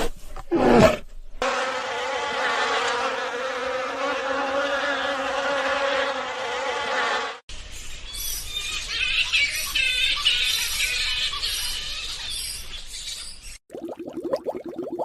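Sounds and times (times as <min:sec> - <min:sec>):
bee buzzing: 0:01.4 - 0:07.4.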